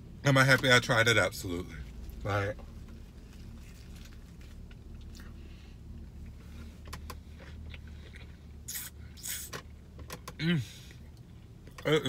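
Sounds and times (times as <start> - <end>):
steady low hum: 0.0 - 12.0
man biting and chewing: 6.8 - 9.5.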